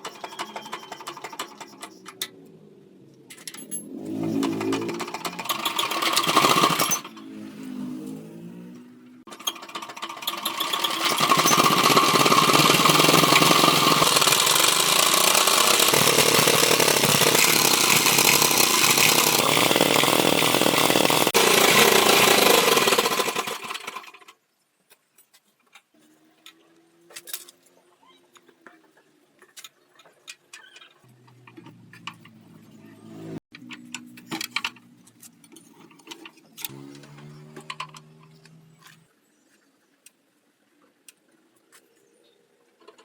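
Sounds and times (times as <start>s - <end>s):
power tool running: 4.0s - 7.2s, 9.3s - 24.2s.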